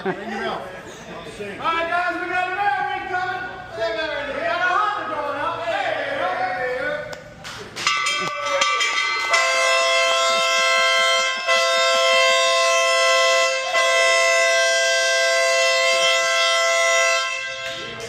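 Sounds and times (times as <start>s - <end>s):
train air horn chord: 9.3s - 18.0s.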